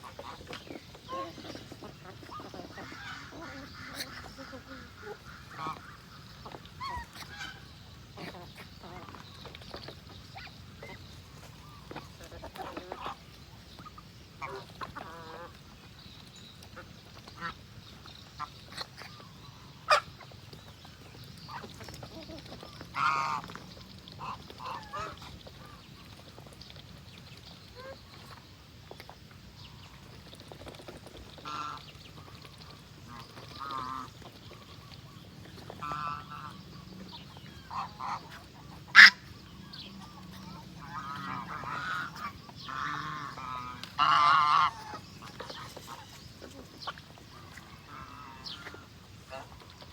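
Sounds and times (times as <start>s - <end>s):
ducks quacking: 0.0s - 9.3s, 10.4s - 15.6s, 16.7s - 17.6s, 18.4s - 20.3s, 21.4s - 25.8s, 31.4s - 49.9s
geese honking: 22.9s - 23.5s, 31.4s - 31.8s, 33.1s - 35.0s, 35.6s - 49.9s.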